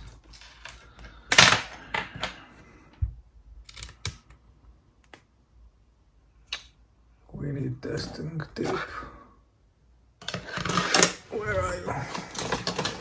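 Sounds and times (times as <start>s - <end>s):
headphones rustling: 10.2s - 13.0s.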